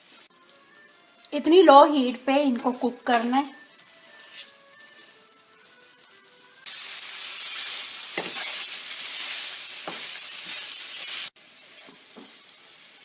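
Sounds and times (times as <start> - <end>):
chicken sizzling in oil: 0.0 - 13.0
spatula scraping pan: 7.5 - 11.3.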